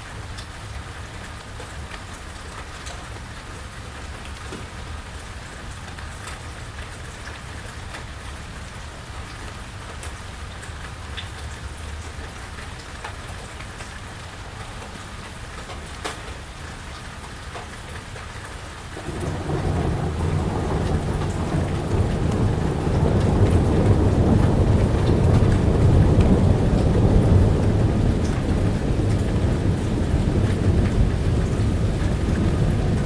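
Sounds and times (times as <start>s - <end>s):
rain falling on porch: 0.0s - 33.0s
deep rumble of thunder: 18.9s - 33.0s.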